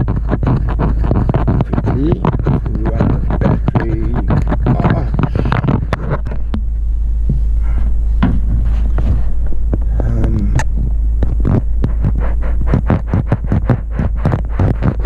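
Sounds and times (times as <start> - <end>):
car knocking and rattling: 0.0 - 7.5
engine and tyres rumbling: 0.0 - 15.0.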